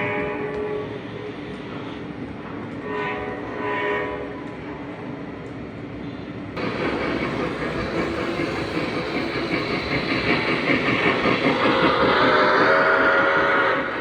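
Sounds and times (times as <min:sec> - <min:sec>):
model train rolling and clattering: 0:06.6 - 0:14.0.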